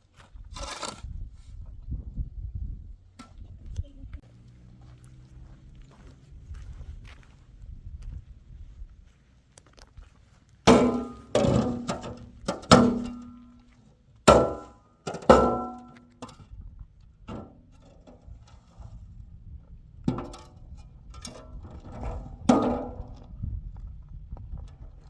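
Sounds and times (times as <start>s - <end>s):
hammer blows ringing: 10.7s - 11.4s, 14.3s - 16.0s.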